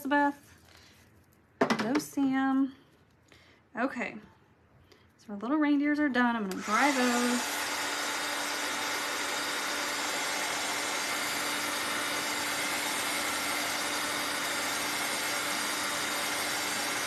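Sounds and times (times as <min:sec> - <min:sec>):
hot-air dryer whooshing: 0:06.5 - 0:17.0.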